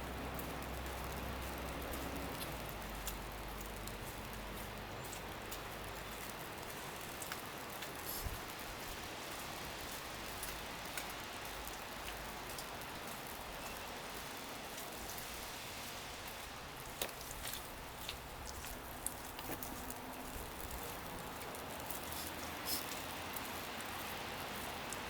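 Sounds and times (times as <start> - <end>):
wet snow pattering: 0.0 - 25.0
small ticks: 0.4 - 8.3.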